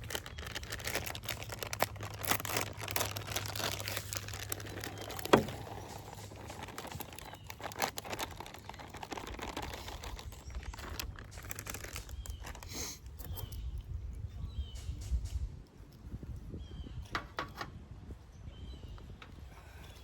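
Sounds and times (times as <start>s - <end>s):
clicks and crinkling of handling: 0.0s - 13.9s.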